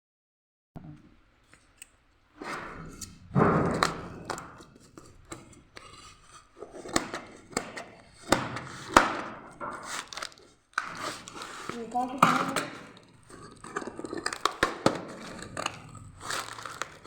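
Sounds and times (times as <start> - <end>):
packaging rustling: 3.8 - 17.0.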